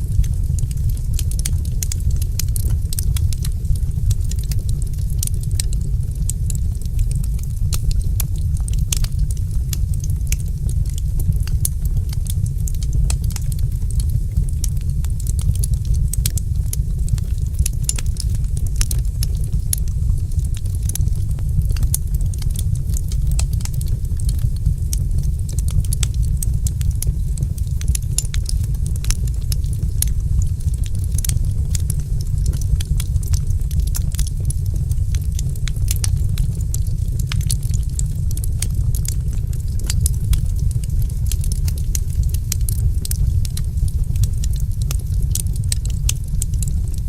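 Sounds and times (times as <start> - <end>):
fire crackling: 0.0 - 47.0
low rumble: 0.0 - 47.0.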